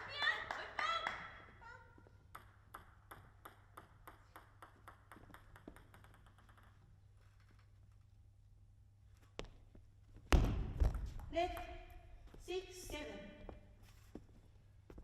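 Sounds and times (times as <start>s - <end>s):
ball bouncing on table: 2.3s - 6.9s
table tennis ball clicking: 2.3s - 7.0s.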